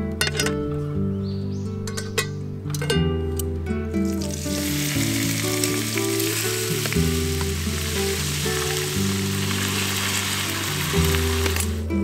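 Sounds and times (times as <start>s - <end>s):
background music with low notes: 0.0s - 12.0s
beef sizzling in a hot pan: 4.1s - 11.9s.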